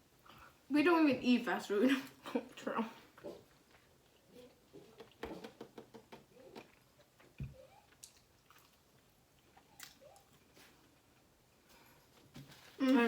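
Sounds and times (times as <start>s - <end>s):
people chewing: 6.4s - 12.0s.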